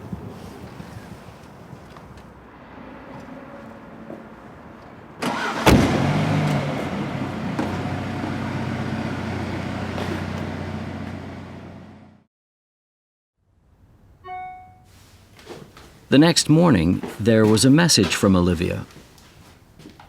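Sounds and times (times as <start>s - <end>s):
car engine starting and running: 5.2s - 12.3s.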